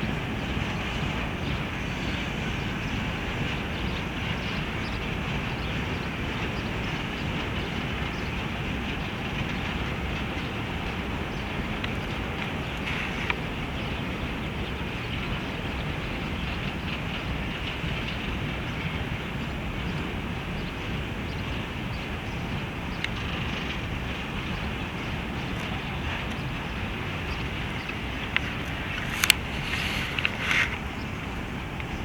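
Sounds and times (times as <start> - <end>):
freight train wheels rumbling: 0.0 - 32.0
faint clicks: 11.8 - 13.5, 27.2 - 30.9.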